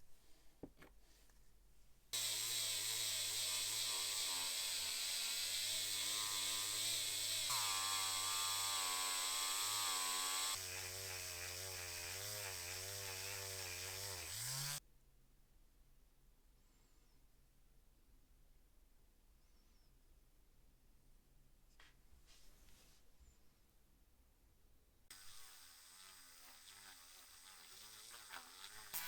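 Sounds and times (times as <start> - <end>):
electric power tool whining: 2.2 - 14.8, 25.1 - 29.0.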